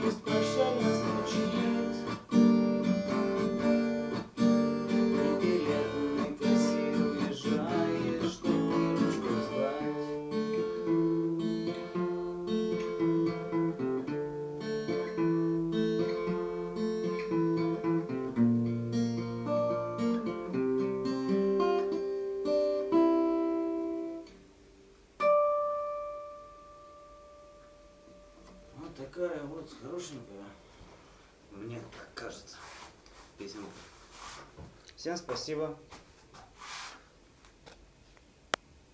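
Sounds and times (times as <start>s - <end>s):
acoustic guitar chords: 0.0s - 30.8s.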